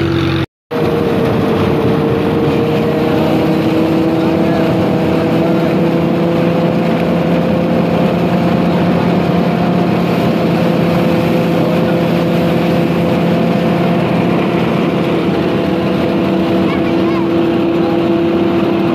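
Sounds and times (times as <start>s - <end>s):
thresher drum humming and rattling: 0.0s - 18.9s
tractor engine running: 0.0s - 18.9s.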